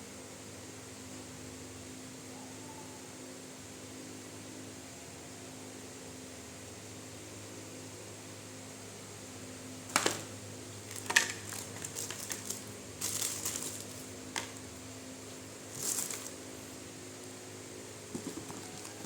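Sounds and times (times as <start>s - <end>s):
low electrical hum: 0.0s - 19.0s
packaging crinkling: 10.8s - 14.6s, 15.7s - 16.4s, 18.2s - 19.0s
packaging clicks: 10.9s - 14.6s, 18.2s - 19.0s.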